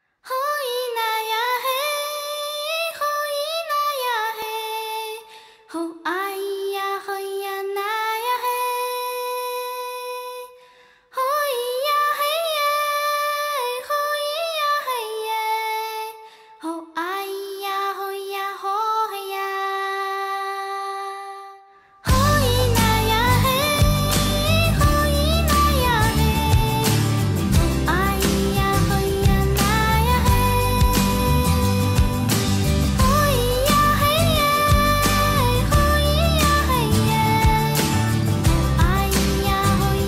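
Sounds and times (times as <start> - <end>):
high voice singing: 11.2 - 40.0.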